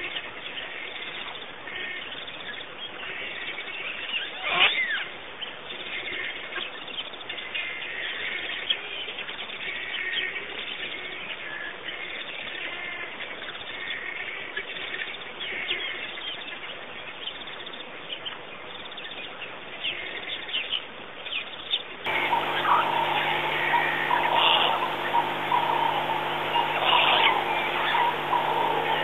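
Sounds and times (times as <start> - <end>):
small birds chirping and trilling: 15.0 - 29.0
steady background hiss: 21.9 - 29.0.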